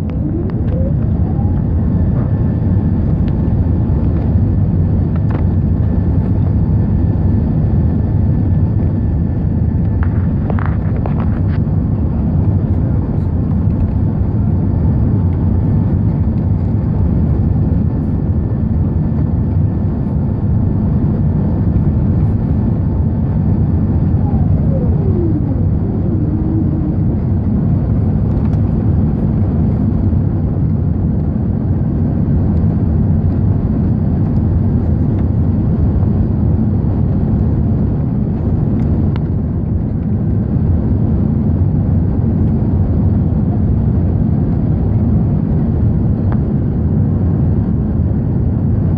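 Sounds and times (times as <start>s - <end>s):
faint falling engine whine: 0.0s - 30.0s
jet engines roaring on take-off: 0.0s - 48.9s.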